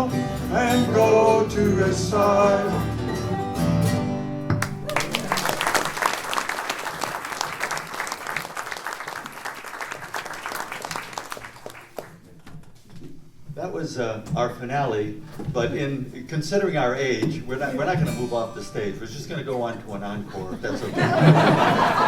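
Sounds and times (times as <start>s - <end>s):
audience applause: 4.6s - 12.2s.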